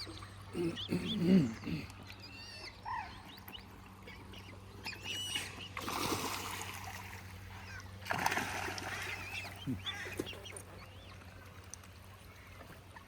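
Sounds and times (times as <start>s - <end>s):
water birds calling: 0.0s - 13.0s
water splashing: 3.4s - 13.0s.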